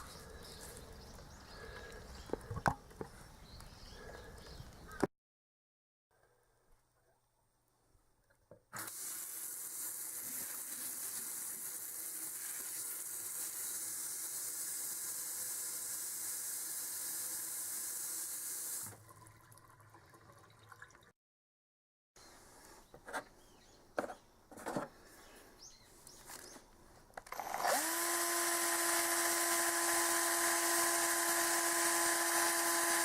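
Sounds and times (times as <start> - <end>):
water running from a tap: 8.8 - 21.1.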